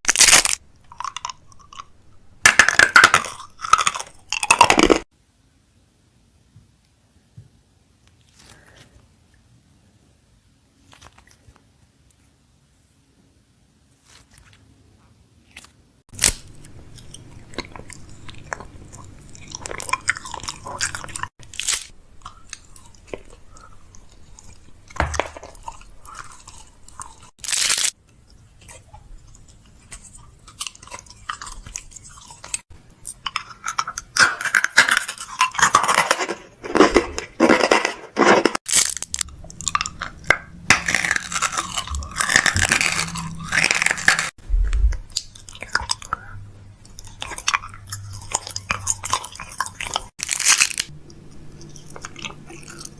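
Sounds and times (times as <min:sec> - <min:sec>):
plastic packaging crinkling: 0:19.4 - 0:21.9, 0:27.4 - 0:28.0, 0:34.8 - 0:44.4, 0:48.4 - 0:50.9.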